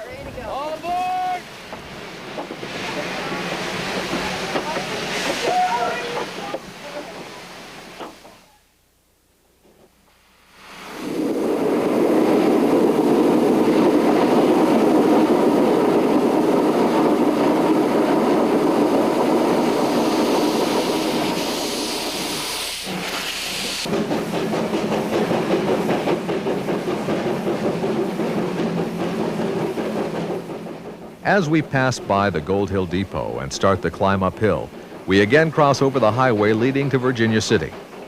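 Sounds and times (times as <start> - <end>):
high steam hiss: 0.0 - 8.6, 9.9 - 38.0
steam locomotive rush of steam: 0.0 - 8.8, 9.6 - 38.0
rhythmic locomotive pulsing: 11.0 - 38.0.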